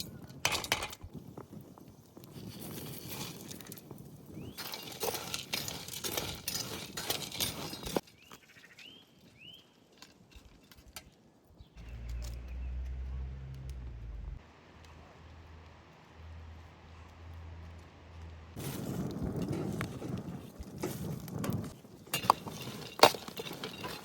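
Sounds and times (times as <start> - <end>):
low steady rumble: 11.8 - 18.6.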